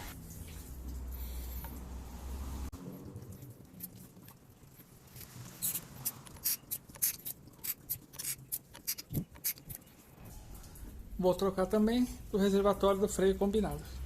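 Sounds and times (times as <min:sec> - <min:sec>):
scratchy clicks and scrapes: 0:03.8 - 0:09.9.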